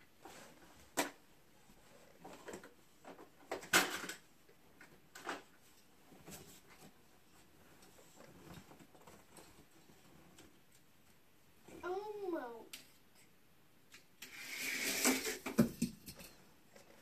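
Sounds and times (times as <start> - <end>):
toy cars and track clattering: 2.3 - 4.2, 14.2 - 16.4.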